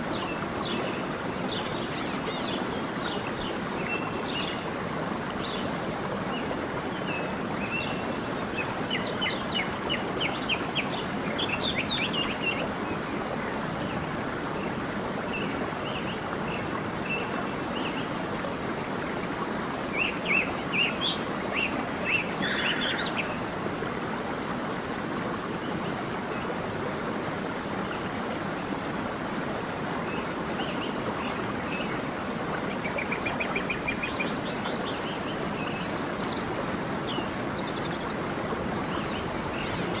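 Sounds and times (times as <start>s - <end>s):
stream flowing: 0.0s - 40.0s
songbirds chirping: 30.1s - 40.0s.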